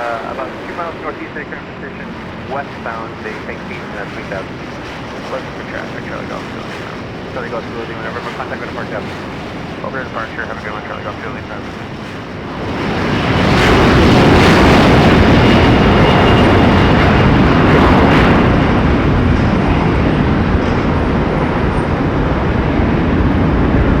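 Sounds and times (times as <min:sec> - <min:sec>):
aircraft engines rushing: 0:00.0 - 0:24.0.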